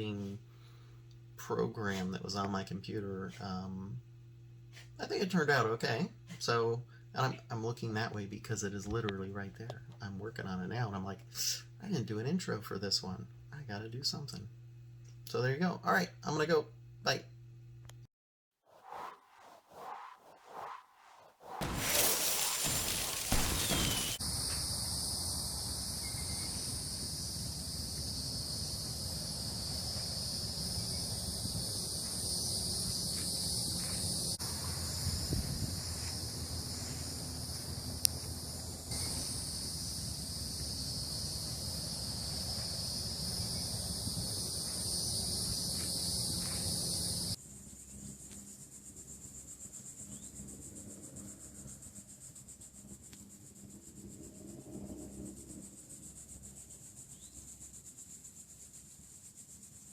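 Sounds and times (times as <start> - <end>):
insects buzzing: 21.5 - 59.9.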